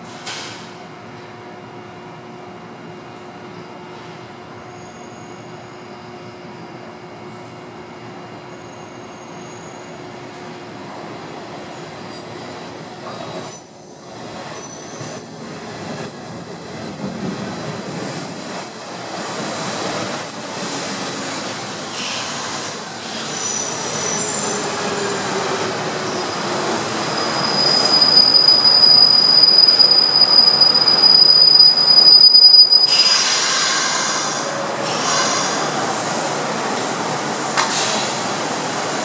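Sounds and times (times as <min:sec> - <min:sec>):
high brake squeal: 0:04.7 - 0:06.0, 0:08.4 - 0:10.3, 0:14.6 - 0:15.1, 0:23.0 - 0:25.0, 0:26.0 - 0:35.8
train running noise: 0:05.4 - 0:39.0
burst of hiss: 0:21.9 - 0:22.8, 0:32.9 - 0:36.3, 0:37.6 - 0:38.4.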